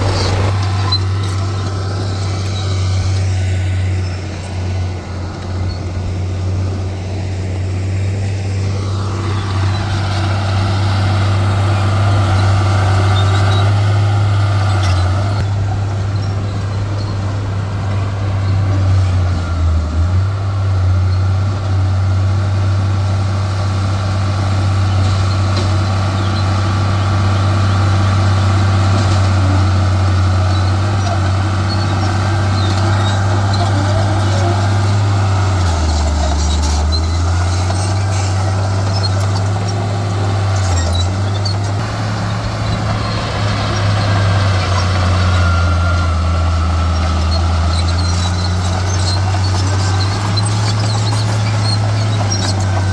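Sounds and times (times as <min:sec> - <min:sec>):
higher mechanical whine: 0:00.0 - 0:19.3, 0:30.2 - 0:52.9
diesel machinery engine hum: 0:00.0 - 0:52.9.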